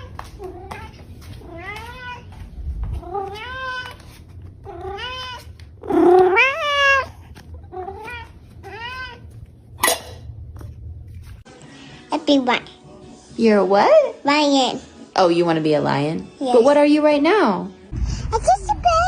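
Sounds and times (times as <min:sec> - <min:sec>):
cat meowing: 0:03.0 - 0:09.3.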